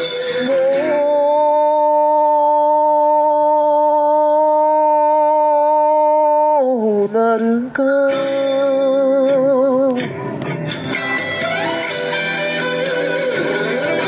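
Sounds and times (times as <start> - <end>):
person singing long note: 0.2 - 10.0.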